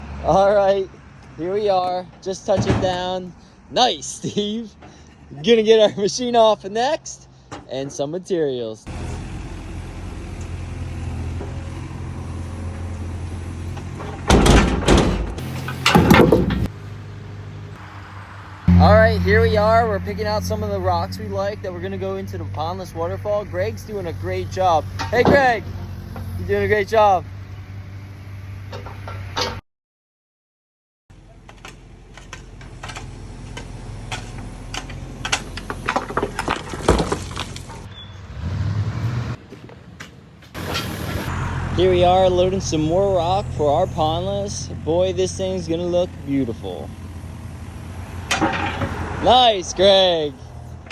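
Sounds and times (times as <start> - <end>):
engine running: 8.9 - 29.6, 31.1 - 39.4, 40.6 - 50.9
rocks clattering: 15.4 - 16.7, 32.2 - 37.9
machine engine running: 40.6 - 41.5.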